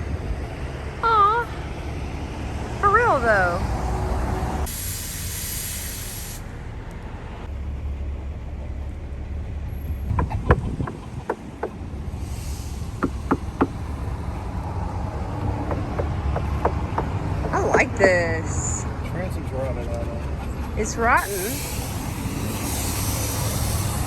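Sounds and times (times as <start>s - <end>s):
vehicle hiss: 4.2s - 6.8s, 12.2s - 14.7s, 18.6s - 24.0s.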